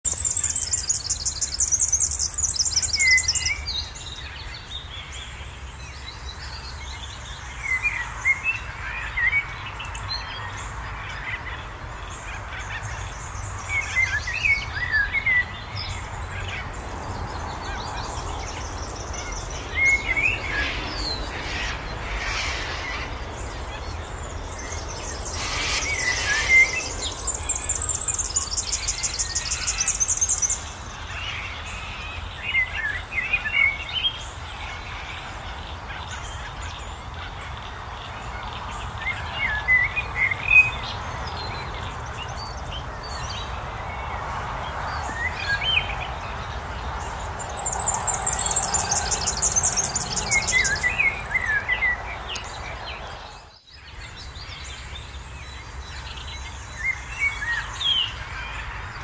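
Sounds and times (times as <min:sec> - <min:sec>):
bird singing high trills: 0:18.4 - 0:30.6, 0:47.6 - 0:52.5.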